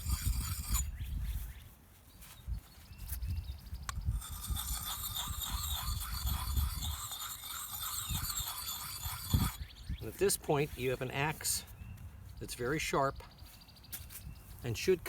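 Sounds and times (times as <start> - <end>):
sharpening stone scraping axe blade: 0.0 - 0.9, 4.1 - 9.7.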